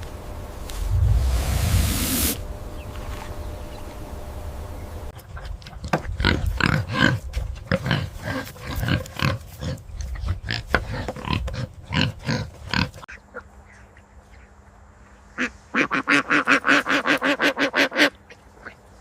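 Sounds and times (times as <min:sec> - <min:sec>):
steady hiss: 0:00.6 - 0:02.6
pigs calling: 0:05.2 - 0:13.9.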